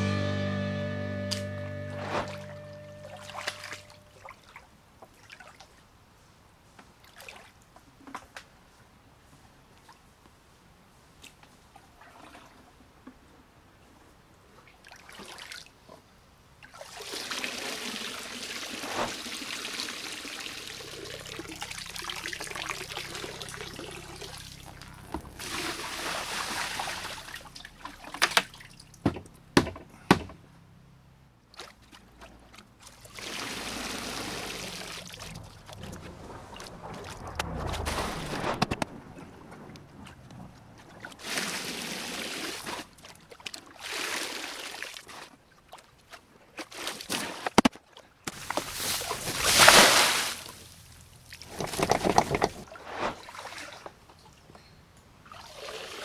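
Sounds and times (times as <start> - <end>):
water pouring and splashing: 16.6 - 29.3, 31.5 - 47.6, 48.3 - 54.4, 55.2 - 56.0
sharp knocks: 28.2 - 30.4.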